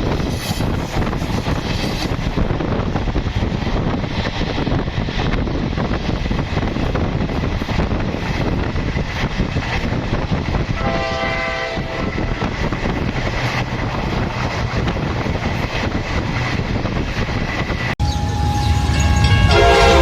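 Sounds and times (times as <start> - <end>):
wind on microphone: 0.0 - 18.0
train wheels rumbling on track: 0.0 - 20.0.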